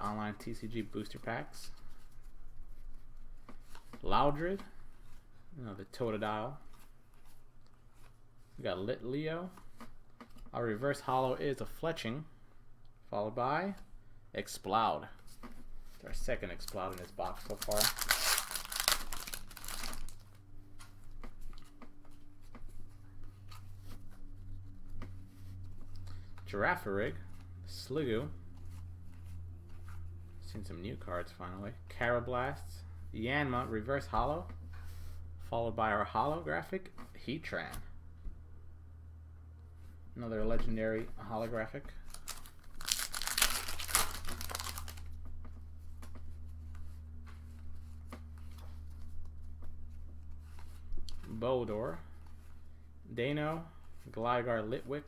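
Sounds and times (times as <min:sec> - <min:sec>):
low electrical hum: 0:00.0 - 0:55.0
cards clicking and rustling: 0:15.4 - 0:22.6, 0:42.0 - 0:45.2
foil wrapper crinkling and tearing: 0:16.5 - 0:20.4, 0:42.0 - 0:45.2.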